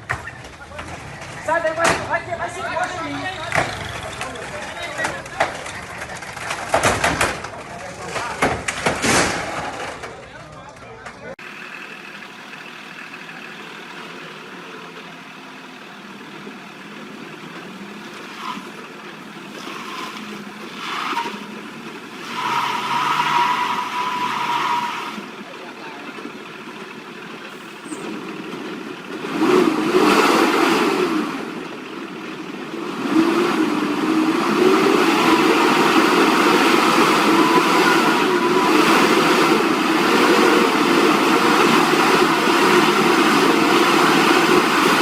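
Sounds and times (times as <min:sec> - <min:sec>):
vehicle engines running: 0:00.0 - 0:45.0
steady high tone: 0:34.1 - 0:45.0.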